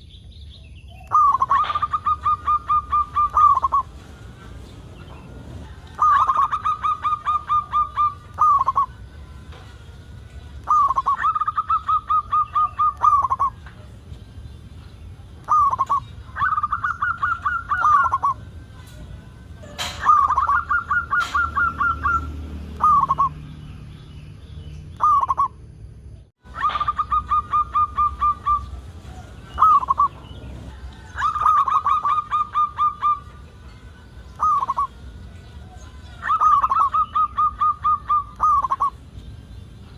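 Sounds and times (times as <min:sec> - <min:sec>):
dove cooing: 0:01.0 - 0:09.1, 0:10.6 - 0:14.0, 0:15.3 - 0:19.1, 0:19.7 - 0:23.4, 0:26.5 - 0:33.4, 0:34.3 - 0:39.0.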